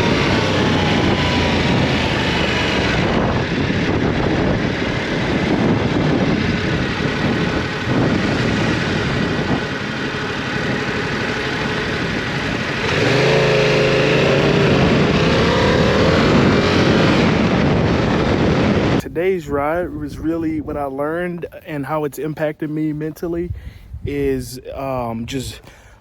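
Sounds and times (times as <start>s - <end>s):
motorcycle engine: 0.0s - 19.0s
wind rushing over microphone: 0.0s - 26.0s.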